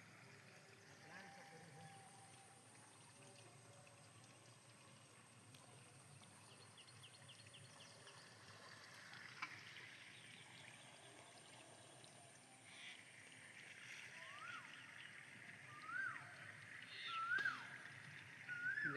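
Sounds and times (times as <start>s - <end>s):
faint water ambience: 0.0s - 18.9s
faint high chirps: 14.1s - 18.9s.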